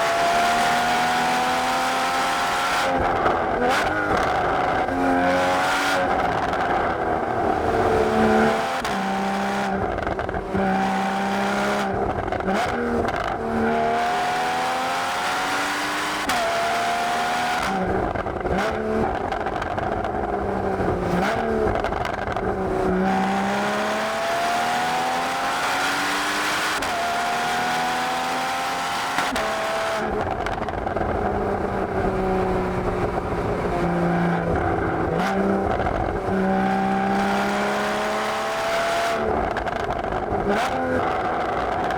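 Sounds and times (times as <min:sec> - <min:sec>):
car exhaust accelerating hard: 0:27.9 - 0:41.9.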